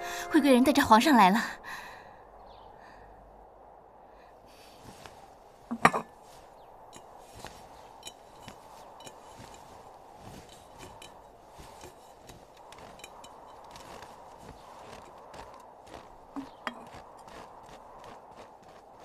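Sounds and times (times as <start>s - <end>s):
footsteps crunching in snow: 4.6s - 19.0s.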